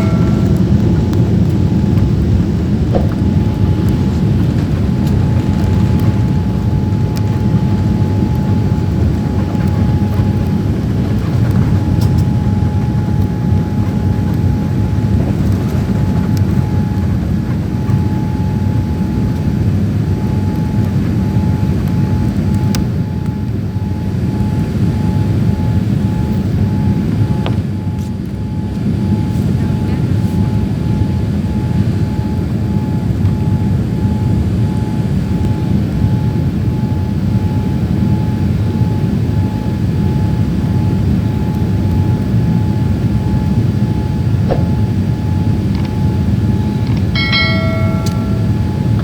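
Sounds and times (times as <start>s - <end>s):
thin steady hum: 0.0s - 10.9s, 43.9s - 49.0s
jet cabin engine rumble: 0.0s - 49.0s.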